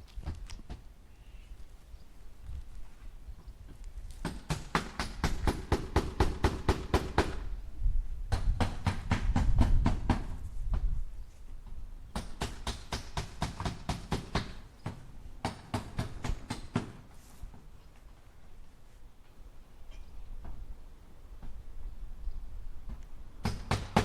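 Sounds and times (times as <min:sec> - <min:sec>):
hammer driving nails into wood: 0:23.4 - 0:24.0.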